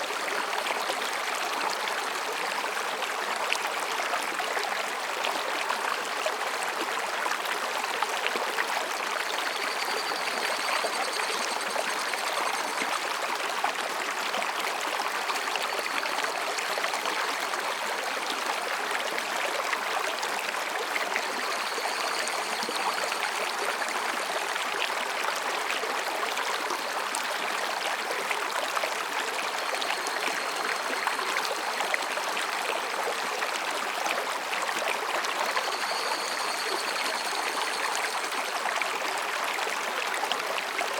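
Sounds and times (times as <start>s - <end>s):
stream rushing over rocks: 0.0s - 40.9s
faint cicada calls: 9.2s - 13.1s, 21.0s - 24.3s, 29.5s - 32.4s, 35.3s - 38.7s.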